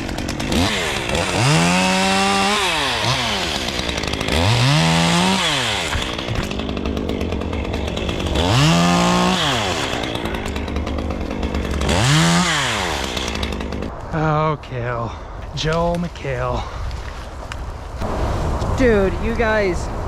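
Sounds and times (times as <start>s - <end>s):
chainsaw revving: 0.0s - 13.9s.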